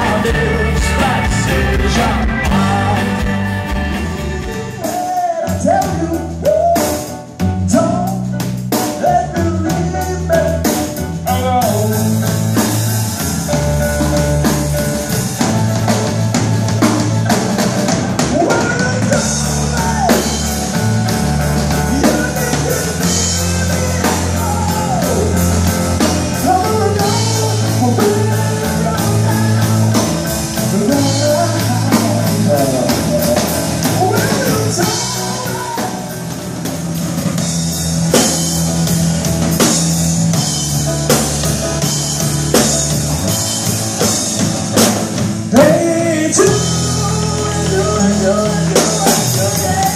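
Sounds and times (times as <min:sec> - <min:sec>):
pitch-bending melody line: 0:00.0 - 0:05.3
bass guitar: 0:00.0 - 0:49.9
drum kit: 0:00.0 - 0:49.9
guitar: 0:00.0 - 0:49.9.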